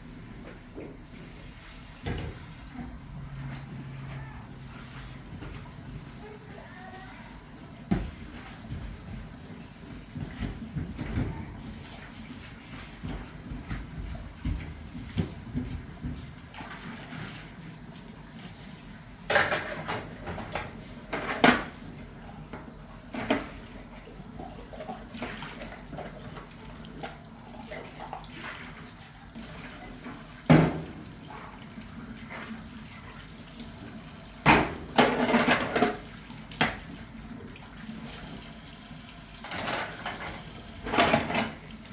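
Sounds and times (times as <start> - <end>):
water splashing and running: 0.0 - 41.9
dishes and pots clattering: 19.3 - 21.8, 34.4 - 36.8, 39.4 - 41.7.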